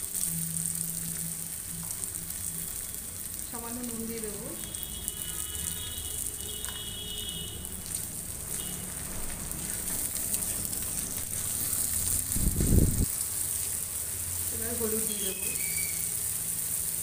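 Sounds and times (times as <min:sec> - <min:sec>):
food sizzling in a pan: 0:00.0 - 0:17.0
spatula stirring: 0:07.6 - 0:12.4.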